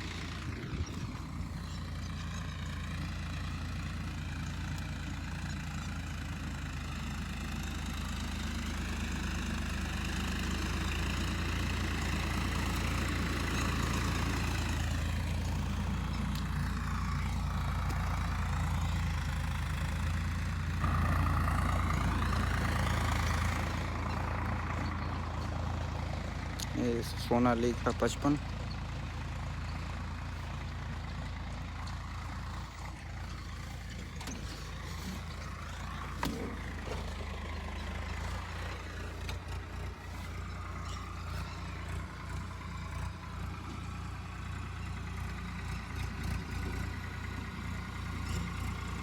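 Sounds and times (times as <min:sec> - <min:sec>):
diesel tractor engine running: 0:00.0 - 0:49.0
soil dragging: 0:31.8 - 0:42.4.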